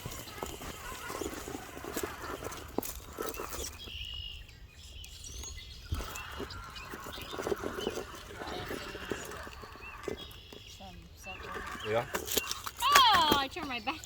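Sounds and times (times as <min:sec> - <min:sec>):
rc car clattering on rocks: 0:00.0 - 0:04.0, 0:11.6 - 0:14.0.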